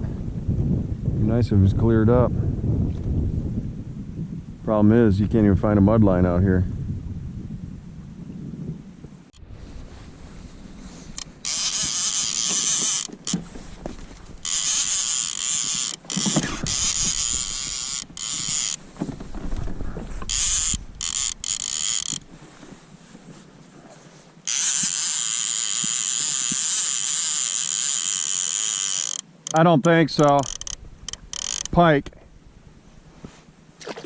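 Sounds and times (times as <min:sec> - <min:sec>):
fishing reel whirring: 0:10.9 - 0:13.6, 0:14.3 - 0:18.8, 0:20.2 - 0:22.3, 0:24.4 - 0:31.8.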